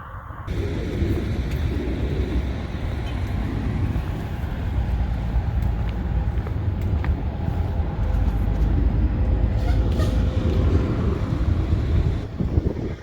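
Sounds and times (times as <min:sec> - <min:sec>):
van road and engine rumble: 0:00.5 - 0:13.0.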